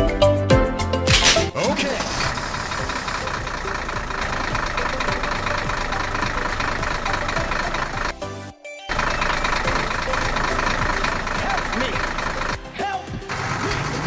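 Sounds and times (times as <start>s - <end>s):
small motor rattling: 1.8s - 8.2s, 8.9s - 12.6s, 13.3s - 14.0s.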